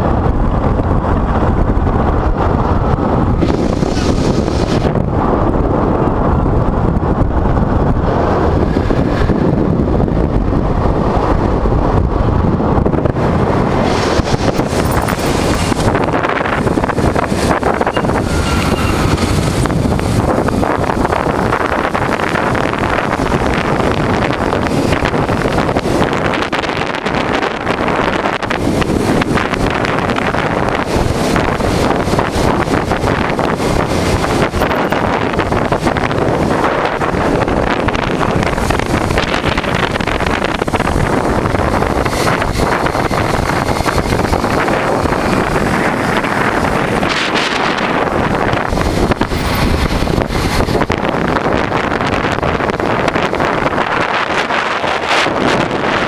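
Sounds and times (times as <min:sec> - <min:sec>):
motorcycle engine running: 0:00.0 - 0:56.0
wind buffeting microphone: 0:00.0 - 0:56.0.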